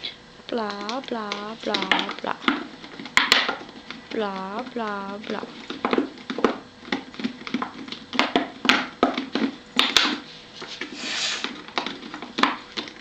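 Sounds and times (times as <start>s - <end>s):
short breathy hiss: 11.0s - 11.4s.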